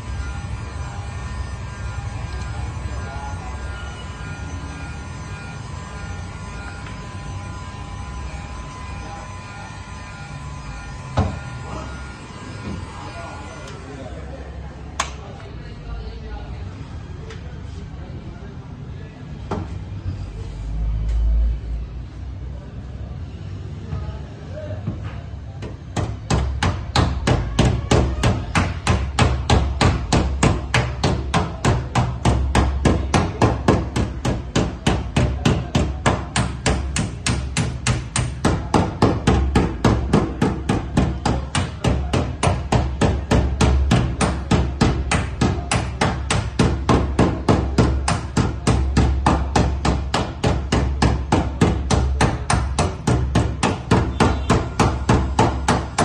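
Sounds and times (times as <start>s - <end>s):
steady hammering: 0.0s - 13.8s, 25.6s - 56.0s.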